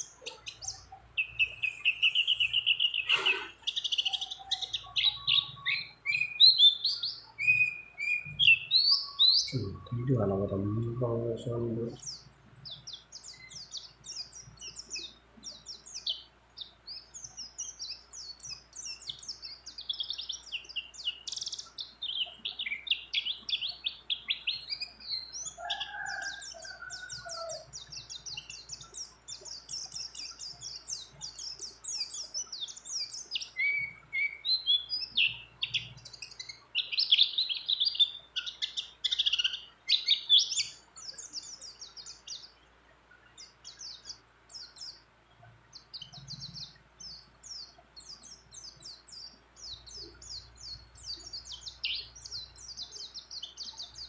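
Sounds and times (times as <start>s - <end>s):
lower-pitched bird call: 0.0s - 12.2s
bird twittering trills: 0.0s - 54.0s.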